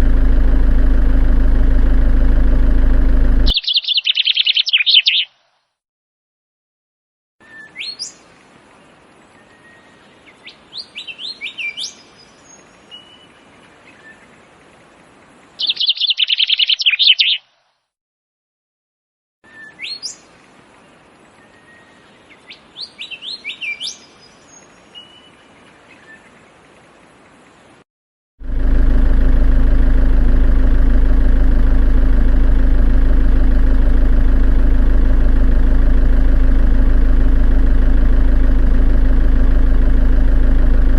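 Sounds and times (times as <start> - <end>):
engine-like idling hum: 0.0 - 3.6, 28.4 - 40.9
birds chirping: 3.5 - 5.3, 15.6 - 17.4.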